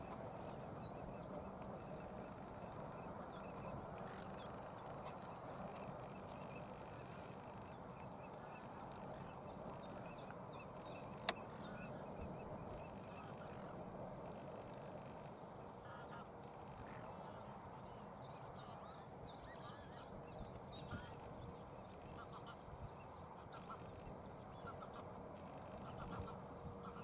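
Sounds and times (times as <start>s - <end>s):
wild birds calling: 0.0s - 17.6s.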